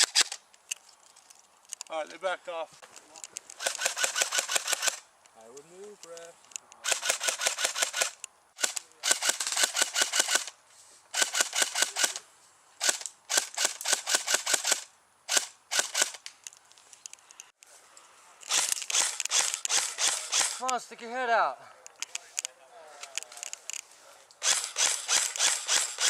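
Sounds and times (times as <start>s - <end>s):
airsoft guns firing bursts: 3.6s - 5.0s, 6.8s - 10.5s, 11.2s - 12.2s, 12.8s - 16.2s, 18.5s - 20.7s, 24.4s - 26.0s.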